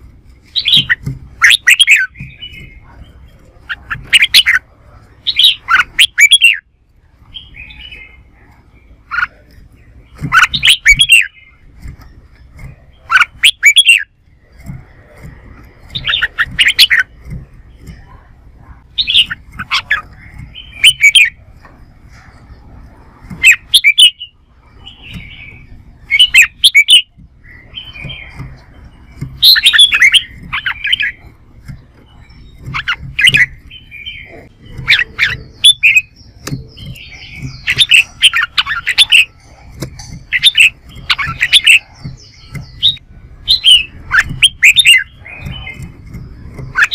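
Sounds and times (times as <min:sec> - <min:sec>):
bulbul singing: 0:00.0 - 0:46.9.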